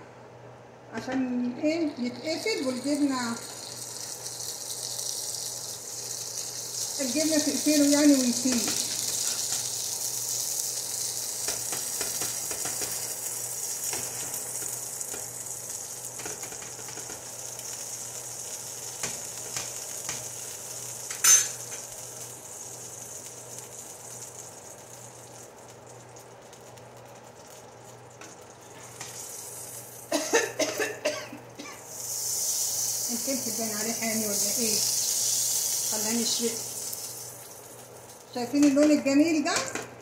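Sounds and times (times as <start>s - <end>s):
tortillas sizzling on griddle: 2.0s - 38.8s
metal spatula tapping and scraping: 11.5s - 13.0s
person coughing: 30.1s - 31.8s.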